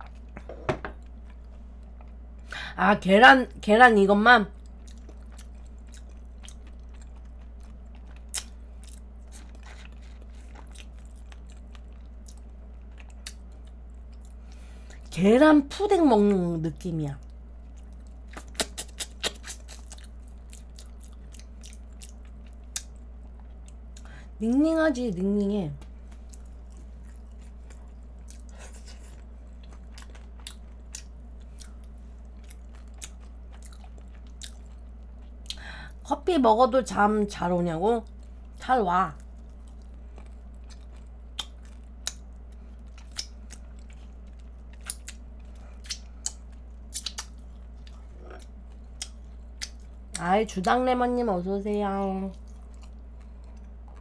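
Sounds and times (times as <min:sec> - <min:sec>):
low hum: 0:00.0 - 0:54.0
pastry crust crunching when chewed: 0:04.5 - 0:15.0, 0:17.2 - 0:24.1, 0:25.8 - 0:35.7, 0:38.0 - 0:50.3, 0:52.0 - 0:54.0.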